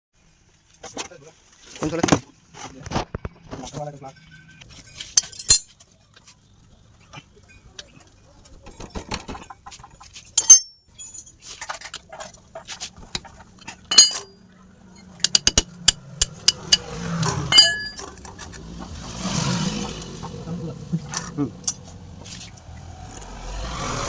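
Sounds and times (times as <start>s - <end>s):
metal tools clinking: 4.4s - 6.0s, 8.6s - 18.6s, 21.1s - 22.4s.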